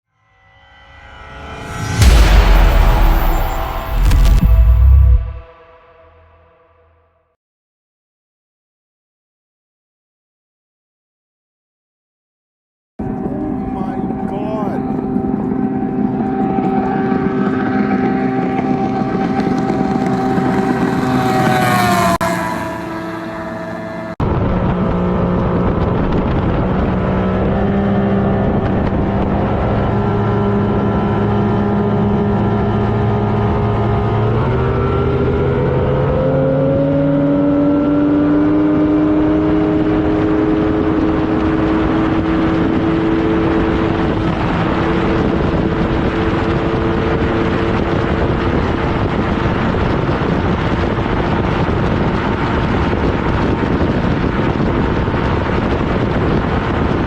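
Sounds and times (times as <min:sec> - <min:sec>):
outboard motor running hard: 0:13.0 - 0:27.4
rush of wind and water: 0:38.6 - 0:57.0.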